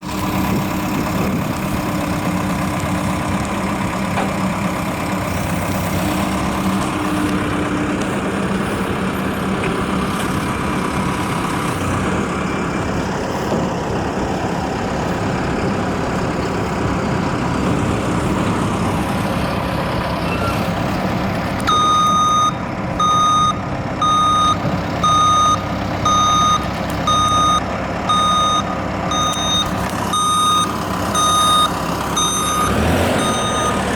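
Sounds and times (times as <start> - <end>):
heavy truck engine running: 0.0 - 33.9
reversing alarm beeping: 21.7 - 33.9.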